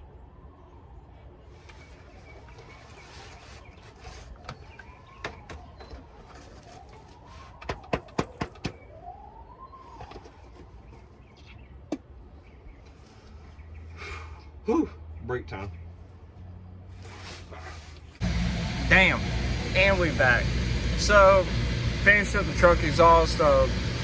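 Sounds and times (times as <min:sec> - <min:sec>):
siren wailing: 0:00.0 - 0:11.2, 0:18.2 - 0:24.0
sharp knocks: 0:07.6 - 0:08.8.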